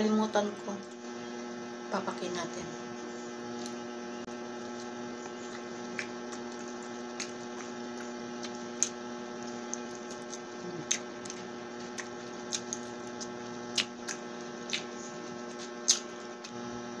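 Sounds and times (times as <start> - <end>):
steady electrical hum: 0.0 - 17.0
woman chewing food: 2.9 - 17.0.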